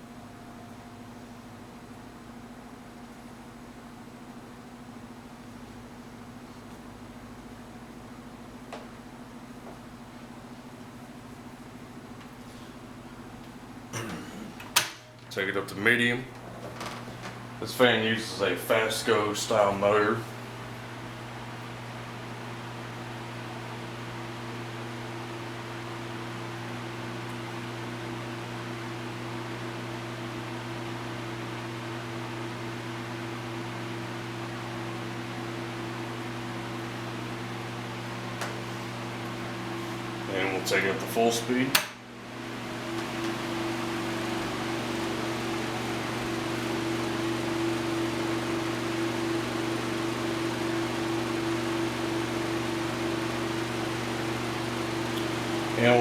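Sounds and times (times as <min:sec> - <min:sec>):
table fan running: 0:00.0 - 0:56.0
electric motor hum: 0:35.0 - 0:56.0.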